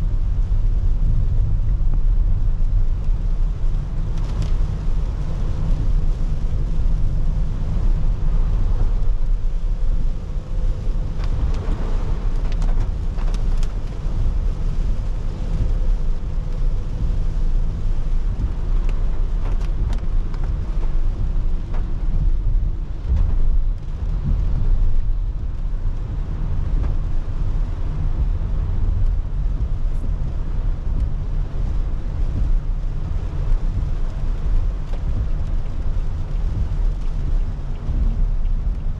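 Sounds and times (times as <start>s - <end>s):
rain noise: 0.0s - 38.9s
road and engine rumble: 0.0s - 38.9s.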